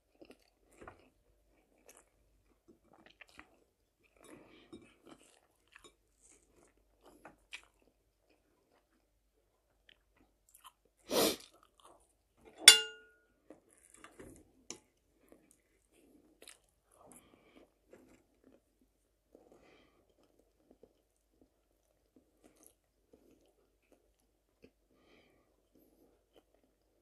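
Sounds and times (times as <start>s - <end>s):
quiet chewing: 0.0s - 12.3s, 13.4s - 27.0s
metal fork clinking on plate: 12.6s - 13.2s.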